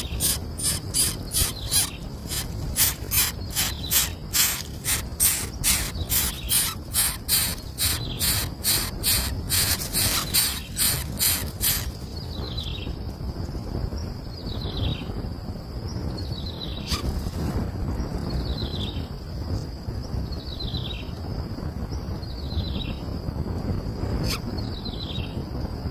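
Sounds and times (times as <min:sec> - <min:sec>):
raspy high bird chirp: 0:00.0 - 0:12.0
whistled bird calls sliding downward: 0:00.0 - 0:12.0.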